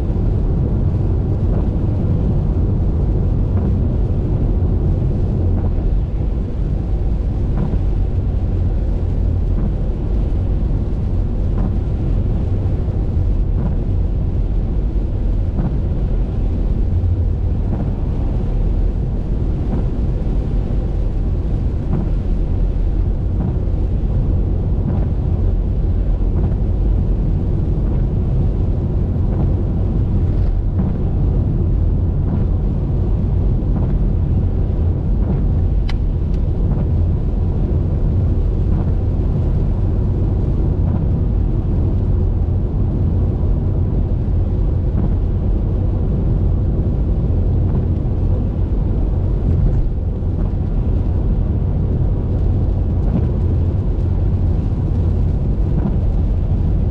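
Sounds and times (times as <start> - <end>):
car driving on highway: 0.0 - 56.9
wind noise: 0.0 - 56.9.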